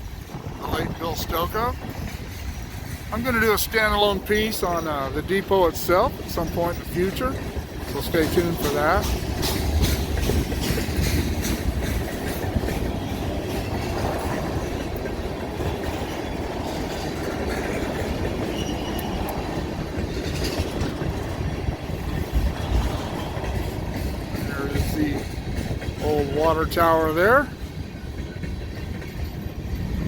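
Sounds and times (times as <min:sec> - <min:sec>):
freight train rumbling past: 0:00.0 - 0:30.0
wheels clicking over rail joints: 0:00.0 - 0:30.0
faint high wheel squeal: 0:18.4 - 0:19.5.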